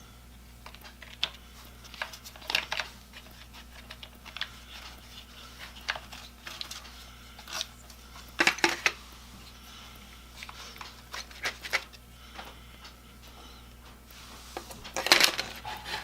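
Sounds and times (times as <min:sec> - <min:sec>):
low electrical hum: 0:00.0 - 0:16.0
hard objects clicking and knocking: 0:00.6 - 0:09.0.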